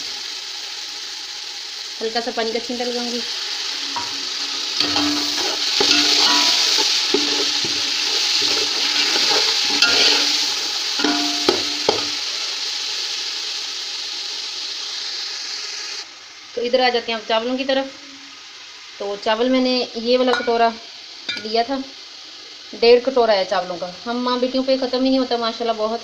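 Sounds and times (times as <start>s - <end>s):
masala sizzling in hot oil: 0.0s - 26.0s
steel spoon scraping a pot: 4.8s - 12.2s.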